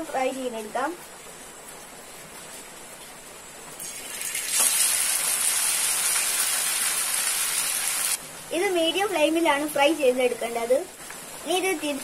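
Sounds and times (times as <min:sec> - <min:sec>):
chicken sizzling in hot oil: 0:03.8 - 0:12.0.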